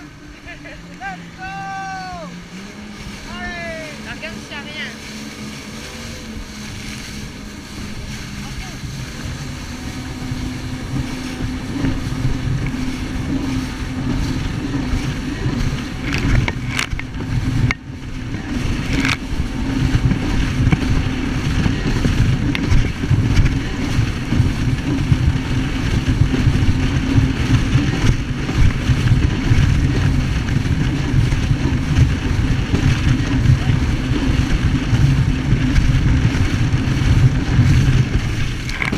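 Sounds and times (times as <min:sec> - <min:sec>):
jet ski engine humming: 0:00.0 - 0:38.9.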